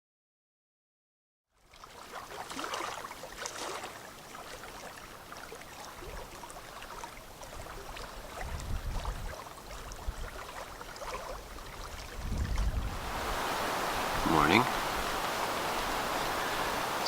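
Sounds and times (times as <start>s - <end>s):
small waves lapping on shore: 1.6s - 17.0s
wind buffeting microphone: 7.5s - 17.0s.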